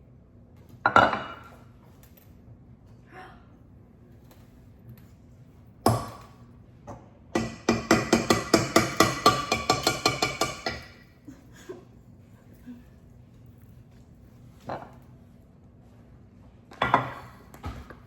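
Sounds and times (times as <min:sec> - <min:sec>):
sharp ringing knocks on kitchenware: 0:07.4 - 0:11.0.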